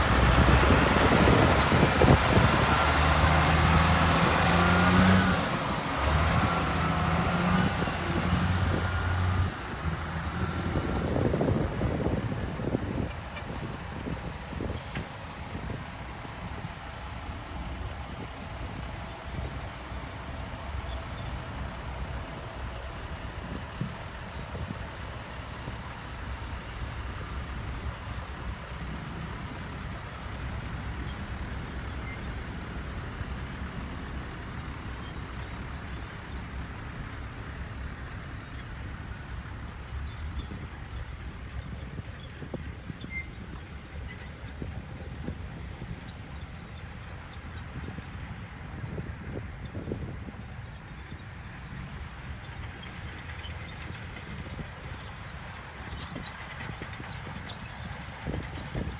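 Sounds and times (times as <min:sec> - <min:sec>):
diesel machinery engines rumbling: 0:00.0 - 0:58.9
brief hiss: 0:14.7 - 0:15.9.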